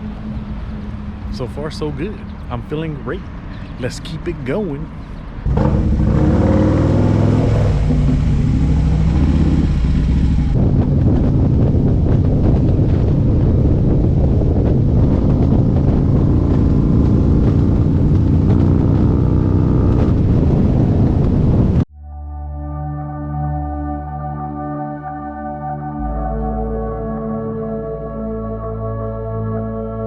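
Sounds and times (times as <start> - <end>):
wind buffeting microphone: 4.5 - 21.9
motorcycle engine running: 5.5 - 21.6.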